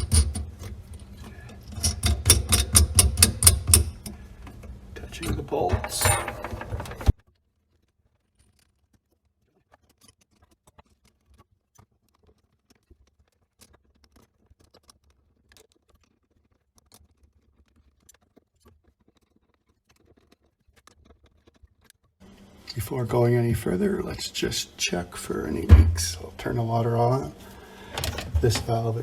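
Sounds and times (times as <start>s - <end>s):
metal hand tools clicking: 1.6s - 4.2s.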